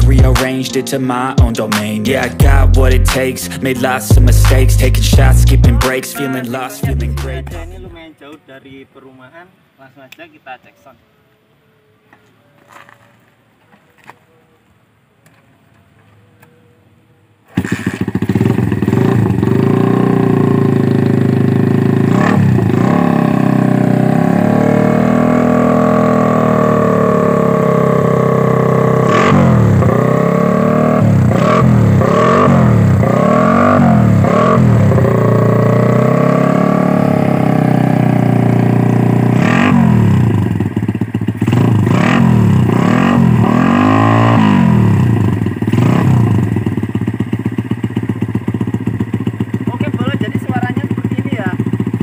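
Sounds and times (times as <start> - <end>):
motorcycle engine revving: 1.6 - 5.9, 17.4 - 52.0.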